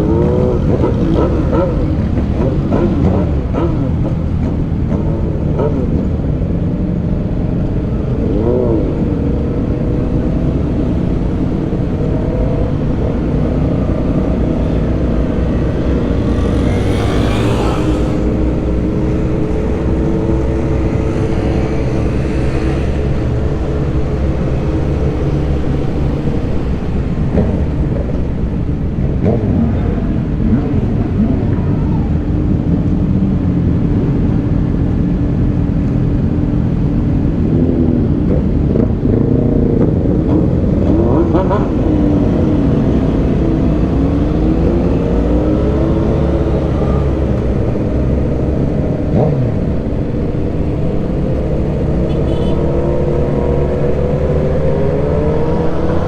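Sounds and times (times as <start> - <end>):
rushes of noise: 0.0 - 33.1
low road rumble: 0.0 - 56.0.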